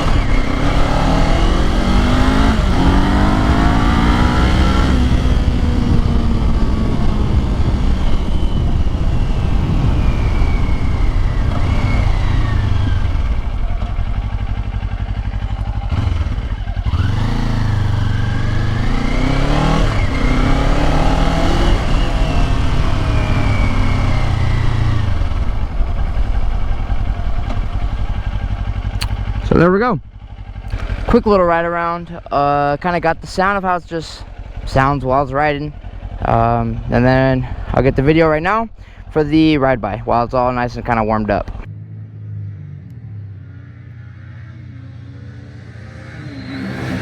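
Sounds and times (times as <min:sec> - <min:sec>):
wind rushing over microphone: 0:00.0 - 0:14.5
motorcycle engine accelerating: 0:00.0 - 0:47.0.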